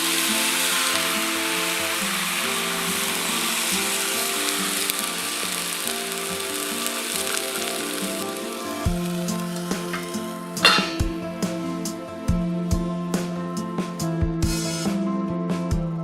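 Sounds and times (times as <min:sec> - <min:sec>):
food sizzling in a pan: 0:00.0 - 0:12.3
background music: 0:00.0 - 0:16.0.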